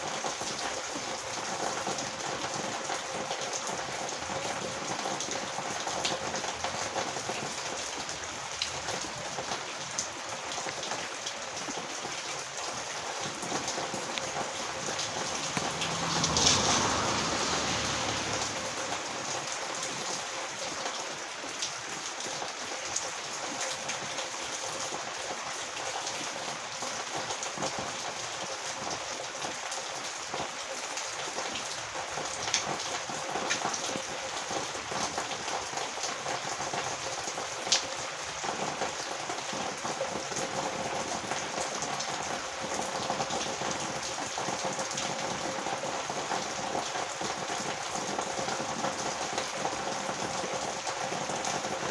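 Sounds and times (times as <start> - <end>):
heavy rain hiss: 11.1 - 22.8
sharp raindrop ticks: 13.2 - 20.2.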